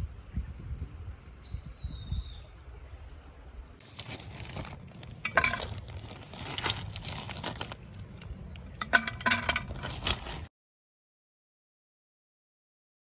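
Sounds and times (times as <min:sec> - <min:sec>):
utensils and cookware clinking: 0:03.8 - 0:07.8, 0:08.8 - 0:10.5
packaging crinkling: 0:03.8 - 0:10.5.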